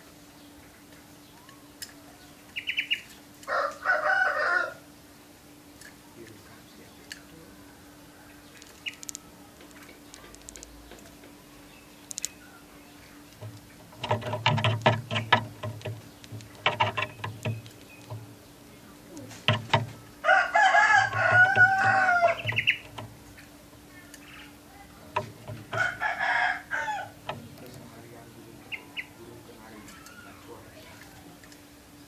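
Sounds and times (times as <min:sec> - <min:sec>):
rooster crowing: 0:03.4 - 0:04.9, 0:07.6 - 0:08.6, 0:20.2 - 0:22.8, 0:25.6 - 0:27.3.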